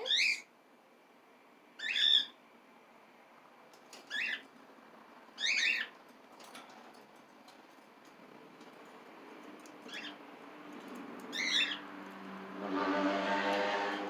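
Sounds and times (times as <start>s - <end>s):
cockatiel calls: 0.0s - 0.5s, 1.8s - 2.4s, 4.1s - 4.4s, 5.4s - 5.9s, 11.3s - 11.8s.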